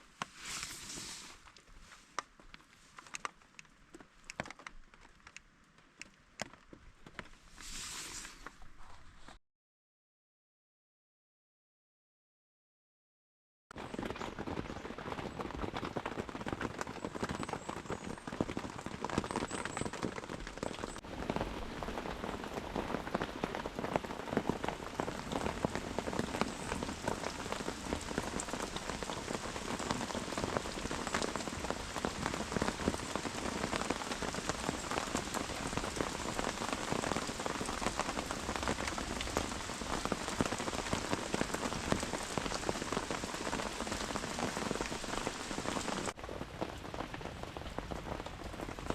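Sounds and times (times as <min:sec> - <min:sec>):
steady rain falling: 0:00.0 - 0:08.5, 0:13.8 - 0:48.9
raindrops striking surfaces: 0:00.1 - 0:08.7, 0:13.8 - 0:48.9.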